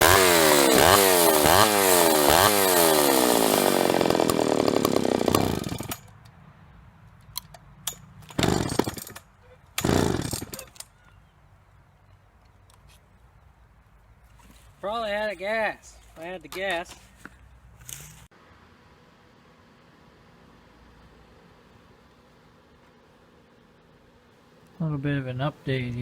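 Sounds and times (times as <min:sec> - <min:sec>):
chainsaw running: 0:00.0 - 0:06.1, 0:08.3 - 0:09.2, 0:09.8 - 0:10.7.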